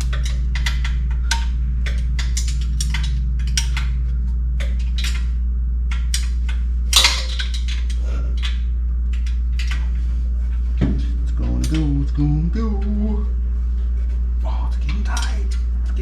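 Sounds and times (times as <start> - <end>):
steady low hum: 0.0 - 16.0
metal clank: 6.9 - 8.0.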